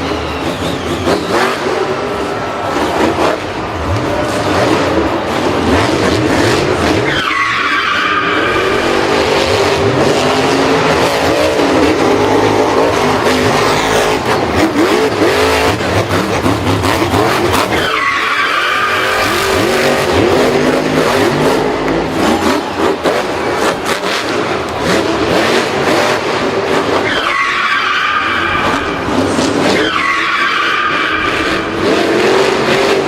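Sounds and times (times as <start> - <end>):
racing car engine revving: 0.0 - 33.0
tyres squealing: 6.8 - 23.8.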